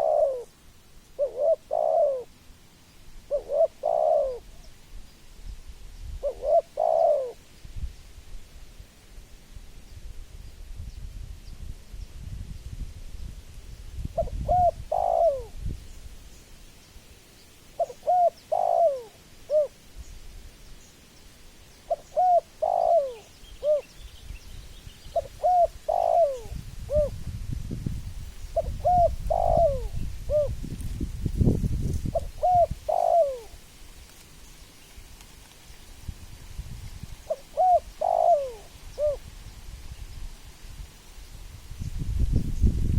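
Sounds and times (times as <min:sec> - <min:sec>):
dove cooing: 0:00.0 - 0:00.5, 0:01.1 - 0:02.4, 0:03.2 - 0:04.7, 0:06.2 - 0:07.4, 0:14.1 - 0:15.6, 0:17.7 - 0:19.8, 0:21.9 - 0:23.9, 0:25.1 - 0:27.2, 0:28.5 - 0:30.6, 0:32.1 - 0:33.6, 0:37.2 - 0:39.3.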